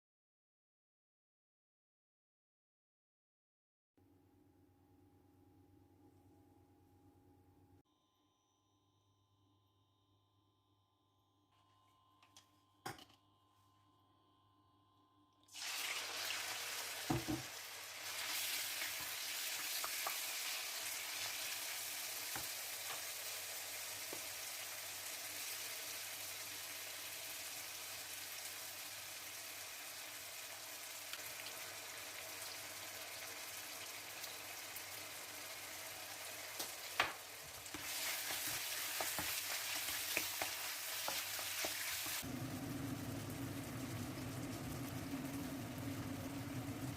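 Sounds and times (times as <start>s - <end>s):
chicken sizzling in a pan: 15.5s - 46.9s.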